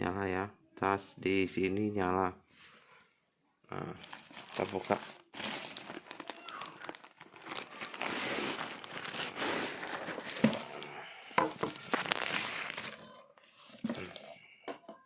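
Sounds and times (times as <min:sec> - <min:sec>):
packaging crinkling and rustling: 0:04.0 - 0:14.4.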